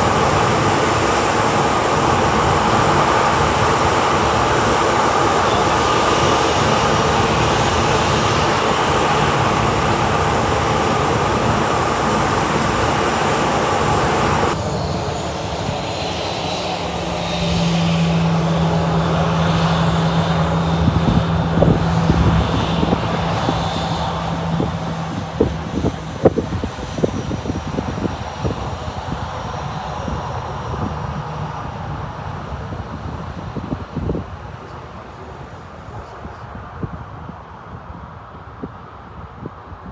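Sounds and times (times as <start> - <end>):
steady low hum: 0.0 - 30.0
dull rush: 0.0 - 36.6
jet engines running: 0.0 - 37.7.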